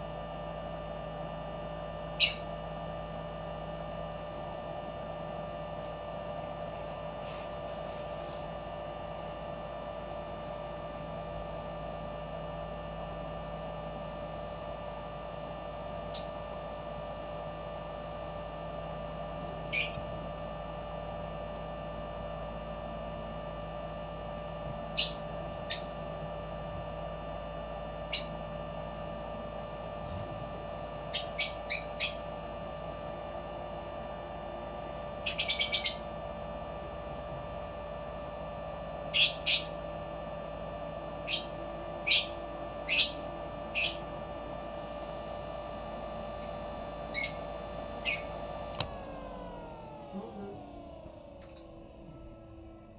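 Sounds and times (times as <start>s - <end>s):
steady hum: 0.0s - 52.9s
high bird chirps: 2.2s - 2.5s, 19.7s - 20.0s, 48.0s - 48.3s, 51.4s - 51.7s.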